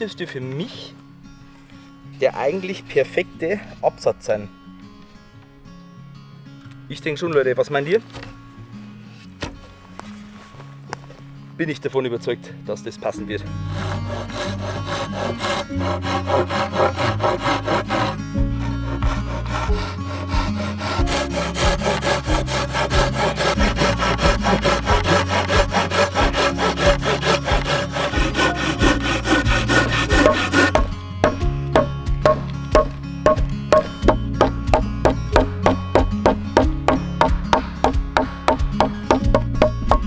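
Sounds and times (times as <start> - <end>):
background music: 0.0 - 40.0
hand saw cutting wood: 13.6 - 40.0.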